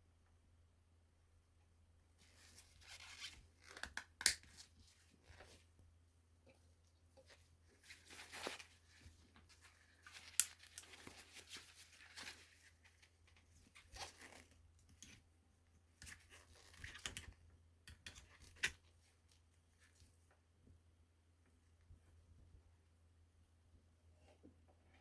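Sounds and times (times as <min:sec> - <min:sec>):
rustling and crinkling: 0:06.5 - 0:15.2, 0:16.0 - 0:17.4.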